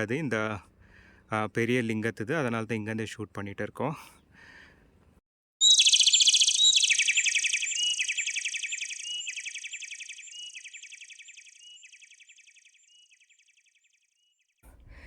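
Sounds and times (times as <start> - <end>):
chirping buzzy trill: 5.6 - 13.8.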